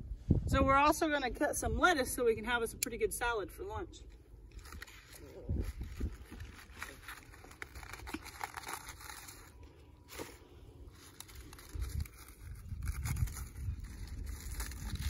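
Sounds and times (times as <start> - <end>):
lettuce leaves tearing: 4.5 - 15.0.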